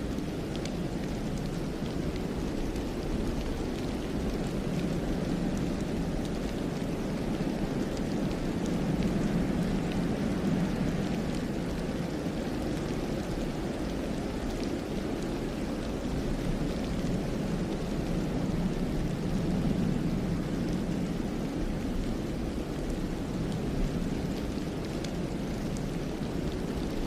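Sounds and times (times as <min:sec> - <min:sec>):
faint light ticks: 0:00.0 - 0:19.7
wind through pine trees: 0:00.0 - 0:27.0.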